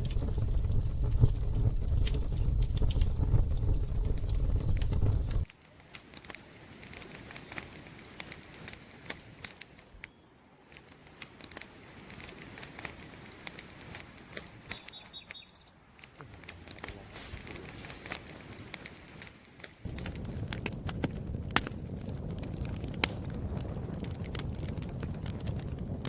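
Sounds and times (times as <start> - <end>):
campfire crackling: 0.0 - 15.0, 15.8 - 26.0
faint high chirps: 13.8 - 15.8.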